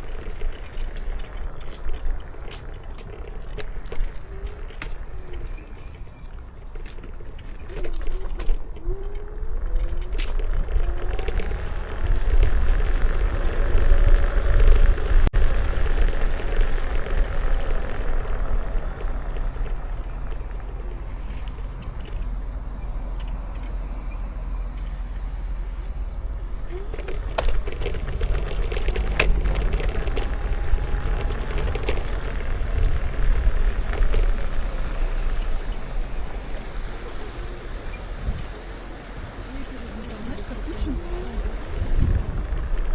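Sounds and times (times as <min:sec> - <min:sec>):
road noise: 0:00.0 - 0:42.9
sharp clicks and rattles: 0:00.0 - 0:42.9
wind rumbling on microphone: 0:00.0 - 0:42.9.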